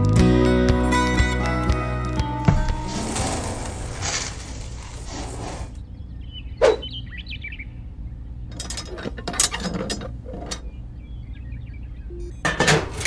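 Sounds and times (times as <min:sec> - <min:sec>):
birds chirping faintly: 0:05.5 - 0:12.4
sharp clicks and scraping knocks: 0:08.5 - 0:10.8.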